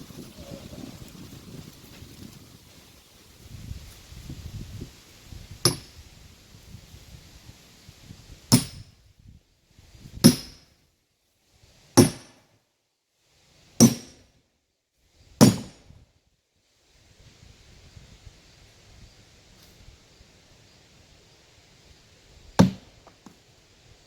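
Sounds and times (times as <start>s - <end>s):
hammer striking metal wedge: 5.7s - 5.9s, 8.5s - 8.8s, 10.2s - 10.6s, 12.0s - 12.3s, 13.8s - 14.1s, 15.4s - 15.7s.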